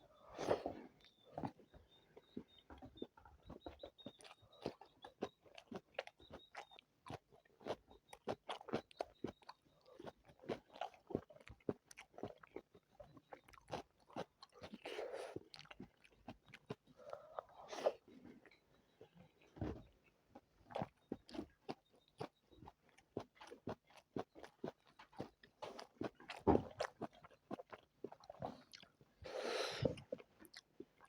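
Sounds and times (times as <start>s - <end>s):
person chewing and biting: 22.2s - 28.9s.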